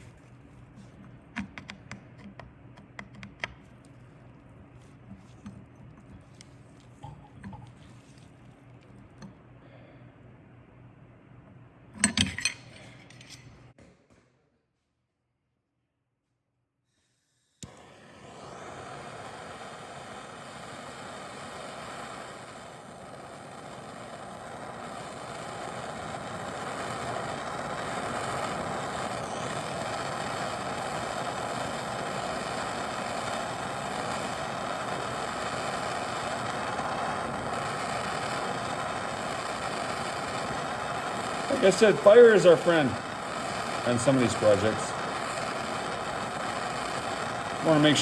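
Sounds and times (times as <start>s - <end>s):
gas torch hissing: 0.0s - 10.6s, 17.0s - 48.0s
gas torch igniter click: 0.8s - 4.0s, 17.6s - 48.0s.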